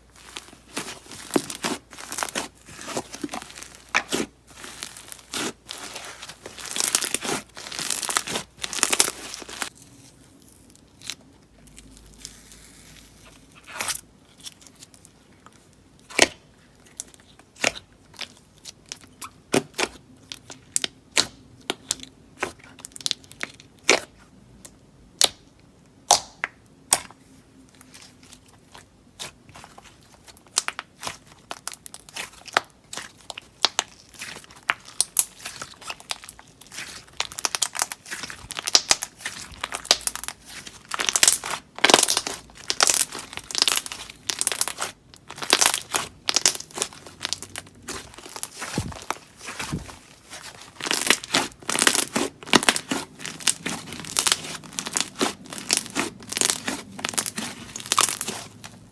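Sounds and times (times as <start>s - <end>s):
slime crackling: 0.0s - 10.2s, 27.8s - 58.9s.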